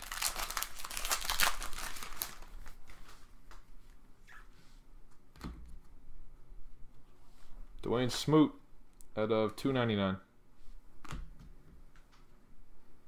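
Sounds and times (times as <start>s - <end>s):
card pack wrapper crinkling: 0.0s - 2.9s.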